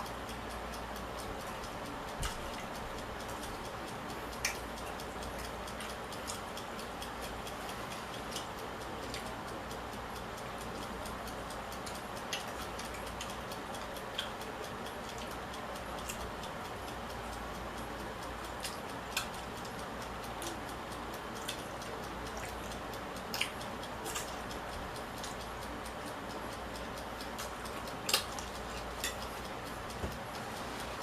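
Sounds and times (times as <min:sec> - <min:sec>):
eating utensil clicks and taps: 0:21.4 - 0:24.6, 0:27.0 - 0:30.3.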